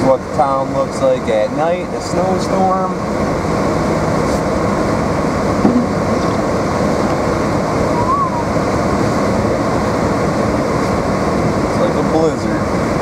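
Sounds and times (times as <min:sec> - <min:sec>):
heater fan running: 0:00.0 - 0:13.0
road and tyre noise: 0:00.0 - 0:13.0
brief knock: 0:05.6 - 0:05.9.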